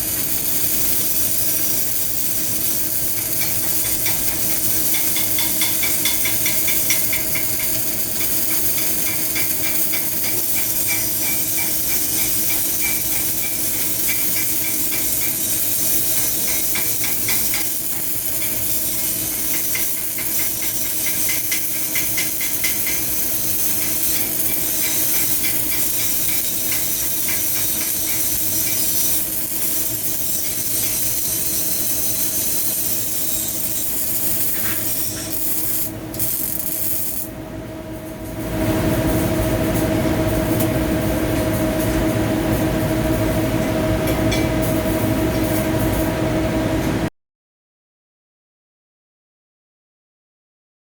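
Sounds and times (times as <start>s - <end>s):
welding arc crackling: 0.0s - 37.4s.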